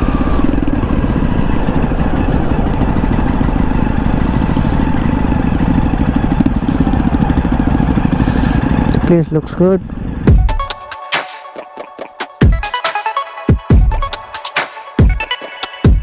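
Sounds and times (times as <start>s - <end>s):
motorcycle engine running: 0.0s - 10.7s.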